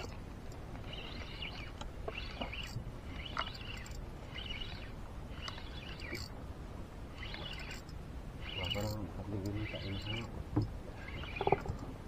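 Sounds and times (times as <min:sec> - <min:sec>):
bird chirping: 0:00.8 - 0:06.3, 0:07.2 - 0:07.8, 0:08.4 - 0:10.3, 0:11.0 - 0:11.7.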